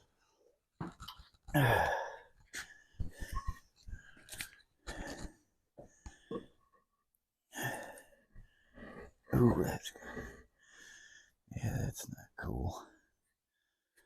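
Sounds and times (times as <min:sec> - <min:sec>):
person grunting with effort: 0:01.5 - 0:02.2.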